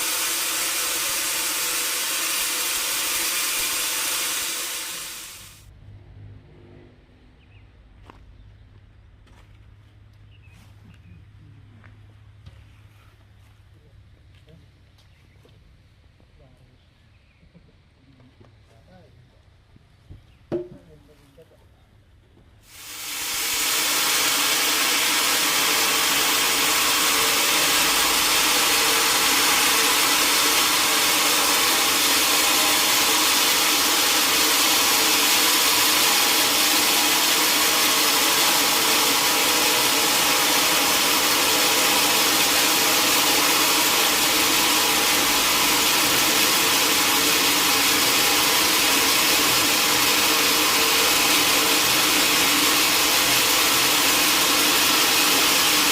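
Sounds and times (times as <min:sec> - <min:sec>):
sawmill saw whirring: 0:00.0 - 0:05.7, 0:22.6 - 0:55.9.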